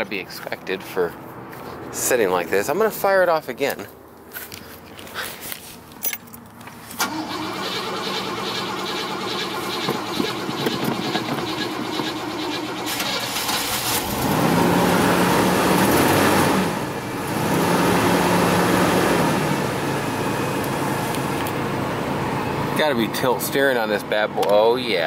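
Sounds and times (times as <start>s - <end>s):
starter motor cranking: 7.0s - 14.3s.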